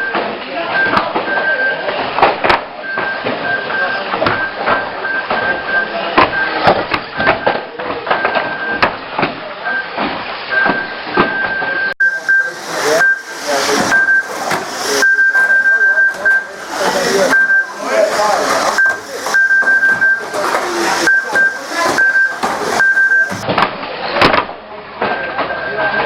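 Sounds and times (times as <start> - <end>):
voices chattering: 0.0 - 26.0
high-pitched motor whine: 12.0 - 23.4.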